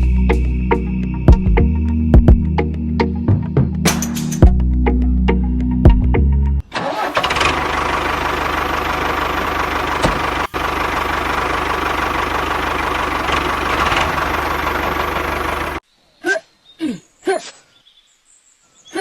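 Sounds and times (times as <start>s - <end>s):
small engine running: 6.9s - 15.8s.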